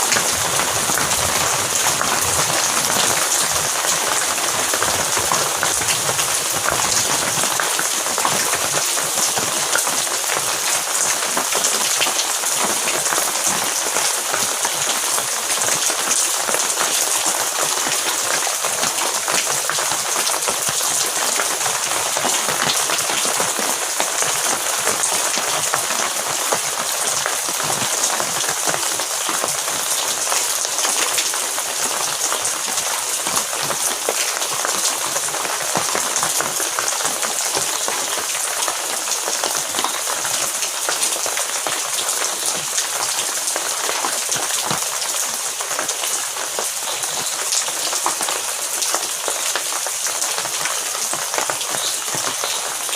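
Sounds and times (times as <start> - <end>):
heavy rain: 0.0 - 52.9.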